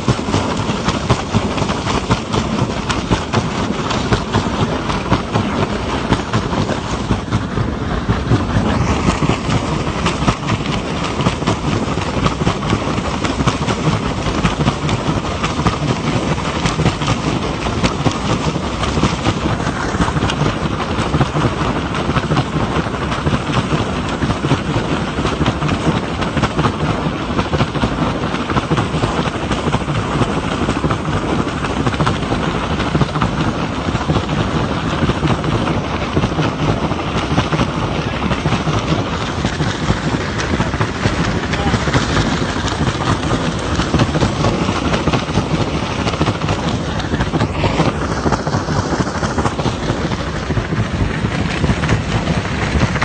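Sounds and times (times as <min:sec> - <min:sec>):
helicopter rotor and engine: 0:37.2 - 0:53.0.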